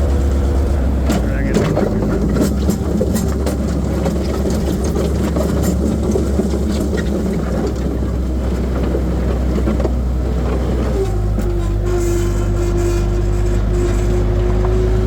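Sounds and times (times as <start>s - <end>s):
short clanks and rattles: 0.0s - 15.0s
skid steer engine running: 0.0s - 15.0s.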